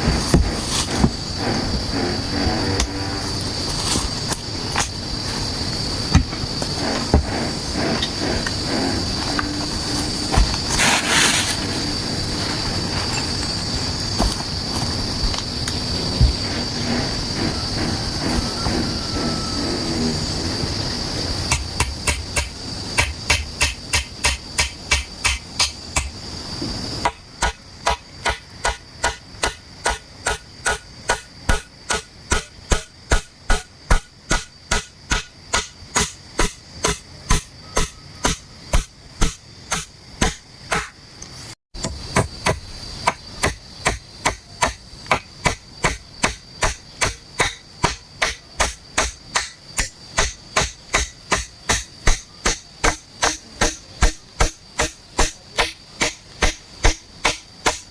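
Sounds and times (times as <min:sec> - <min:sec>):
high insect drone: 0:00.0 - 0:57.9
hand tool striking wood: 0:21.5 - 0:26.2, 0:27.0 - 0:41.0, 0:41.8 - 0:57.9.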